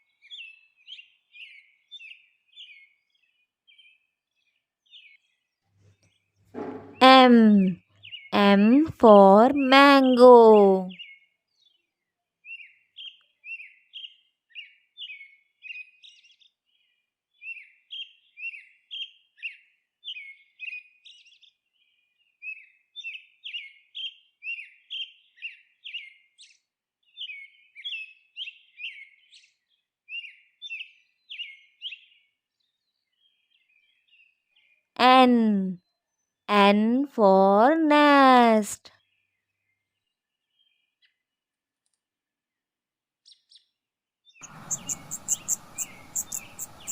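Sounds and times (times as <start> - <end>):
small bird chirping: 44.4 - 46.9.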